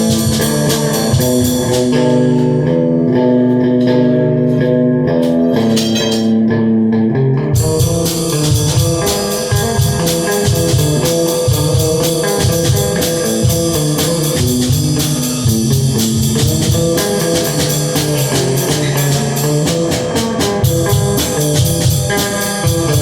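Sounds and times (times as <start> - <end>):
steady drum beat: 0.0 - 2.8, 7.6 - 23.0
guitar playing chords: 0.0 - 23.0.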